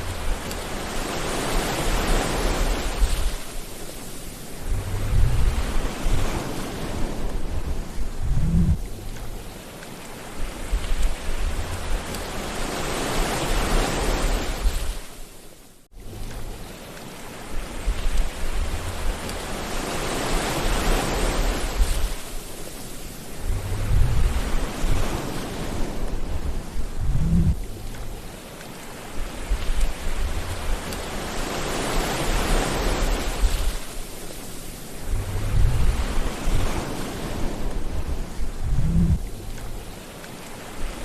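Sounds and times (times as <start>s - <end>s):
sea waves washing onto shore: 0.0s - 41.0s
short low rumbles: 7.6s - 9.2s, 23.4s - 24.5s, 26.2s - 28.2s, 35.1s - 36.2s, 37.9s - 39.7s.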